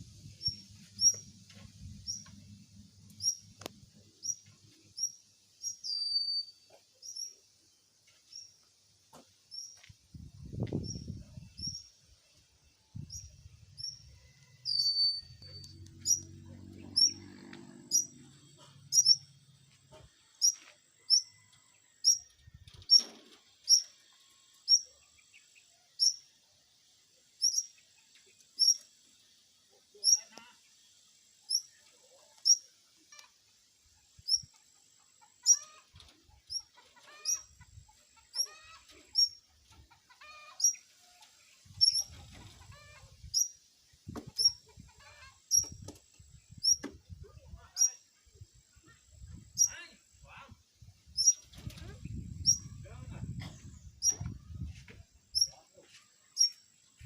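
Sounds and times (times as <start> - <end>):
bird chirping: 0.2 - 1.3, 1.9 - 2.4, 3.0 - 8.6, 10.8 - 12.2, 12.8 - 19.5, 22.0 - 26.3, 27.4 - 28.9, 34.1 - 34.6, 38.2 - 40.8, 51.1 - 54.7, 55.3 - 57.0.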